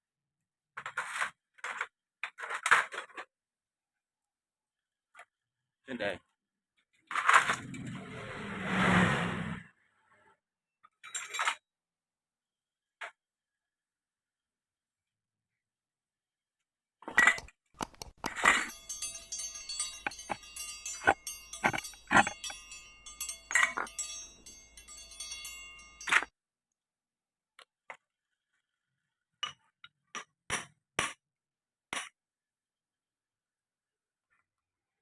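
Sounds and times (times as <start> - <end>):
metal tools clinking and knocking: 17.1 - 26.3
steady ringing: 17.9 - 26.3.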